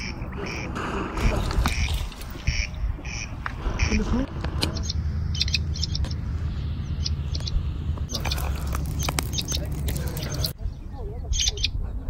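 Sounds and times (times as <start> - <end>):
steady low rumble: 0.0 - 12.0
small birds chirping: 4.7 - 12.0.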